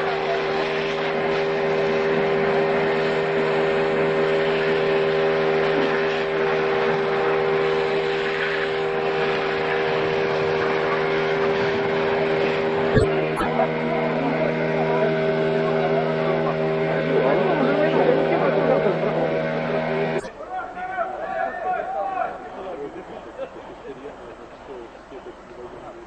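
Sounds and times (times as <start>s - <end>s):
engine running steadily: 0.0s - 20.3s.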